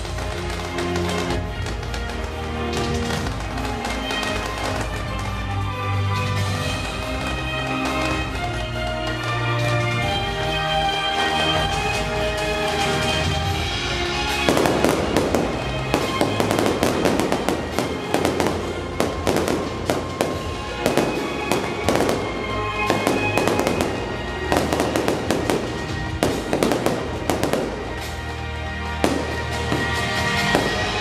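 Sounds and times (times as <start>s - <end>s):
fireworks crackling and popping: 0.0s - 31.0s
music playing: 0.0s - 31.0s.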